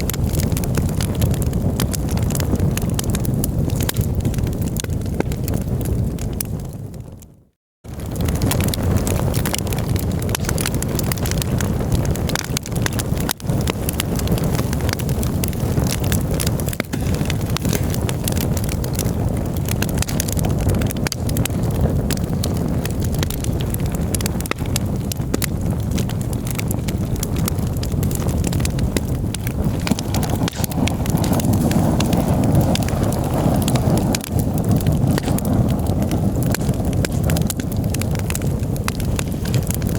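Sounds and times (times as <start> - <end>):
campfire crackling and popping: 0.0 - 39.9
steady low rumble: 13.0 - 39.2.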